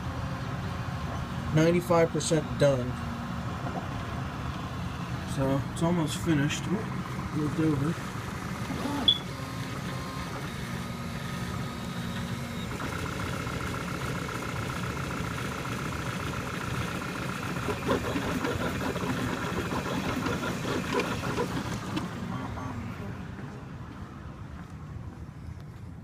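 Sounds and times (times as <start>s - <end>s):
printer fan noise: 0.0s - 25.2s
stepper motors whining: 4.5s - 23.6s.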